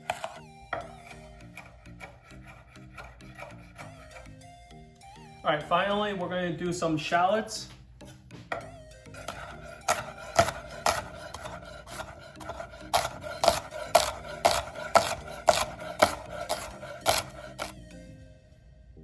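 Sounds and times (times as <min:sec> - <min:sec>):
knife chopping on cutting board: 0:00.0 - 0:04.3, 0:08.0 - 0:17.7.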